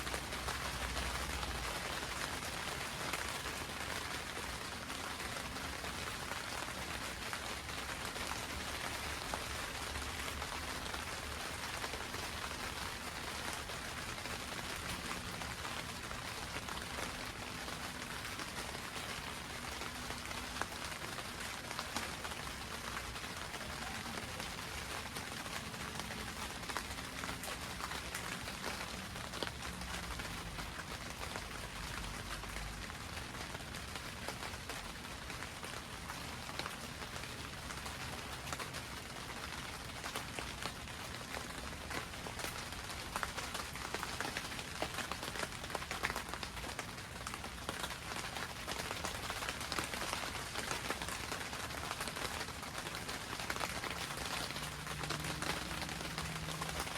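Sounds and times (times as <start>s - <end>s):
rain on a greenhouse roof: 0.0s - 56.9s.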